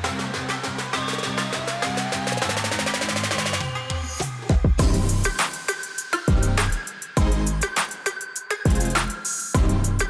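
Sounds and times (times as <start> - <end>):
bass drum beat: 4.5 - 5.4, 6.3 - 7.7, 8.7 - 10.0
hi-hat ticks: 4.8 - 10.0.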